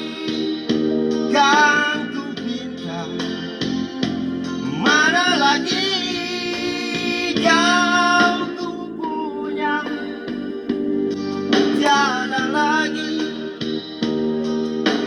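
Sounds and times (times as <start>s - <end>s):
instrumental backing: 0.0s - 15.0s
solo voice singing with vibrato: 4.5s - 10.3s.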